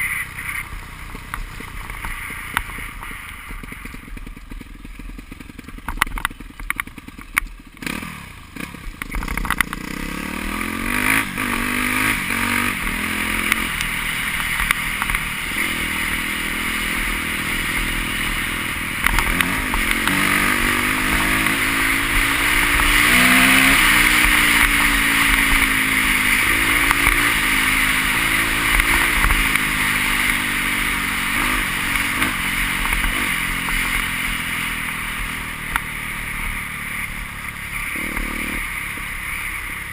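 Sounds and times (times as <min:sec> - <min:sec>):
clatter: 0:00.1 - 0:16.1, 0:17.0 - 0:30.6
motocross bike engines revving: 0:07.8 - 0:39.9.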